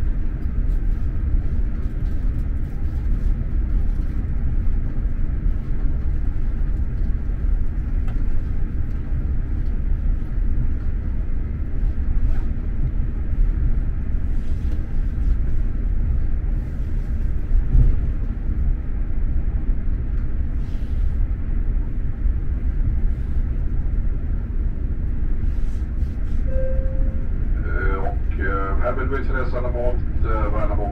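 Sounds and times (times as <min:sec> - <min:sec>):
train rumbling on track: 0:00.0 - 0:30.9.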